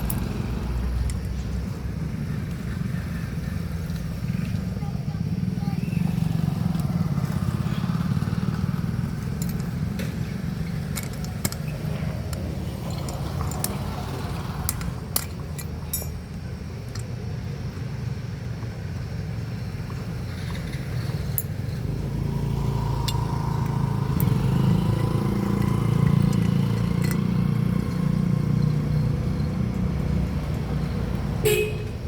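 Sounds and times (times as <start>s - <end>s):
motorcycle engine idling: 0.0s - 32.0s.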